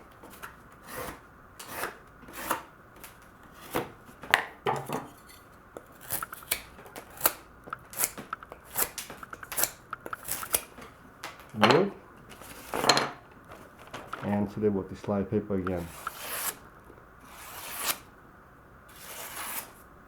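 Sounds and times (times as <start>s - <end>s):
knife slicing through cardboard: 0.3s - 2.7s, 15.8s - 16.6s, 17.2s - 18.1s, 18.9s - 19.8s.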